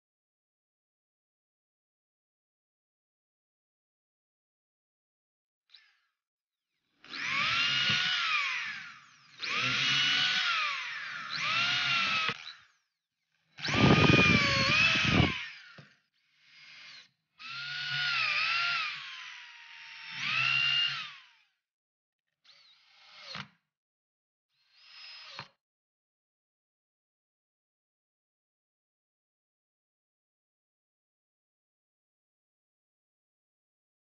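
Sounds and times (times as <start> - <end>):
electric drill whining: 5.7 - 6.1, 6.8 - 21.6, 22.4 - 23.6, 24.6 - 25.5.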